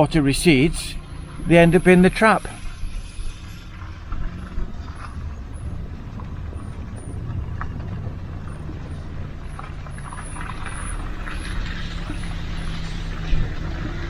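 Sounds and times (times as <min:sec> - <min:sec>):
vehicle driving with low rumble: 0:00.0 - 0:14.0.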